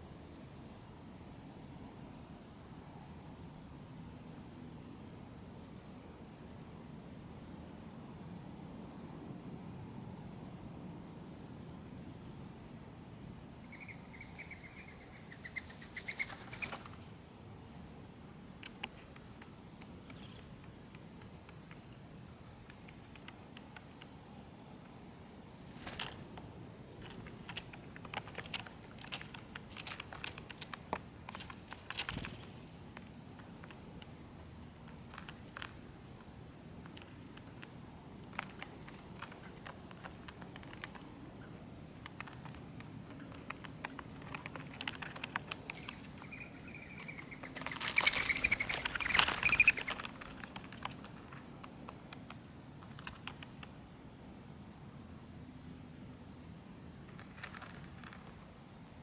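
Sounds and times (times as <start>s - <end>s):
birds pecking seeds: 13.6s - 54.3s, 56.6s - 59.0s
wings fluttering: 13.7s - 17.1s, 18.6s - 21.9s, 25.7s - 34.1s, 36.8s - 41.2s, 42.0s - 53.8s.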